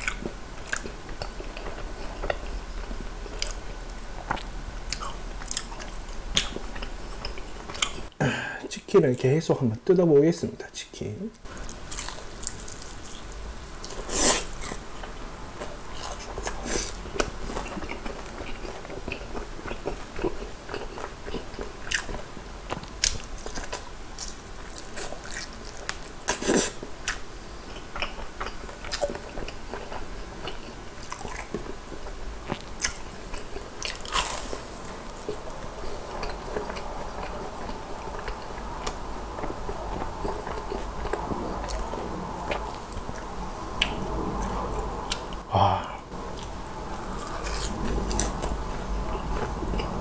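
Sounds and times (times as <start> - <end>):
wet chewing: 3.3 - 8.1, 11.5 - 44.5.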